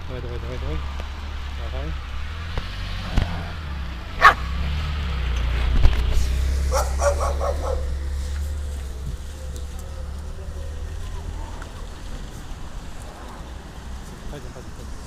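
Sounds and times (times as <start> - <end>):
dog barking: 4.2 - 4.4, 6.7 - 8.0.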